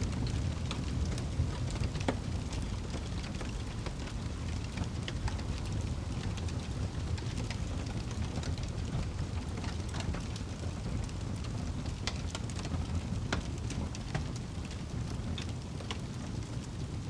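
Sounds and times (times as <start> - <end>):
fire crackling and popping: 0.0 - 17.0
fireplace fire rumbling: 0.0 - 17.0.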